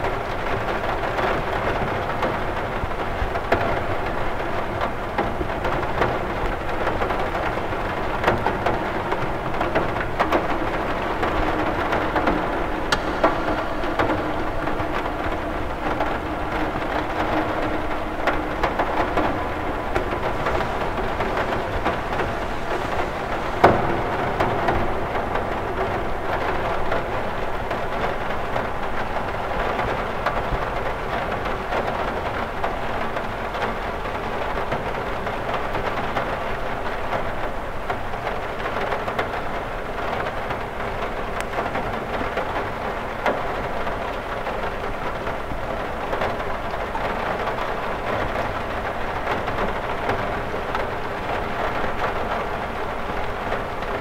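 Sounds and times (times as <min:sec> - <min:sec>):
rain falling on a window: 0:00.0 - 0:54.0
sharp water drop hit: 0:11.4 - 0:27.1.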